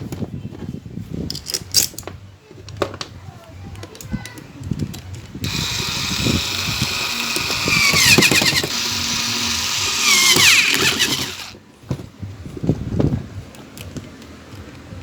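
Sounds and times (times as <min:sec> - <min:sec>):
small electric motor whining: 0:05.4 - 0:11.6.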